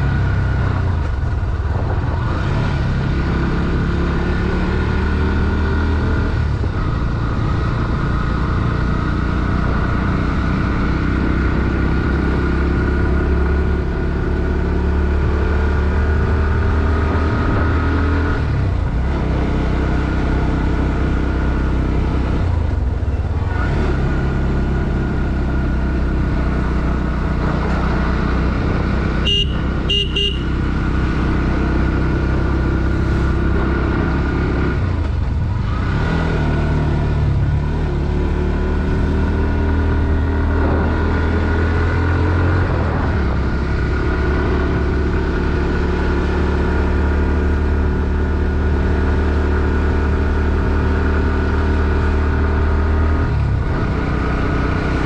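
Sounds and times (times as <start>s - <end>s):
motorcycle engine revving: 0.0s - 55.0s
short horn beeps: 29.2s - 30.6s.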